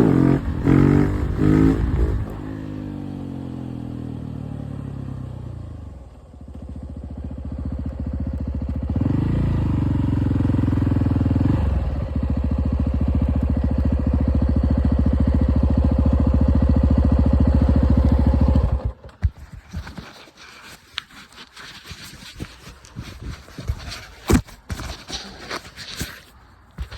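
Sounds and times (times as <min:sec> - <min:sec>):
motorcycle engine running: 0:00.0 - 0:20.0
clicks and scrapes: 0:19.0 - 0:26.9.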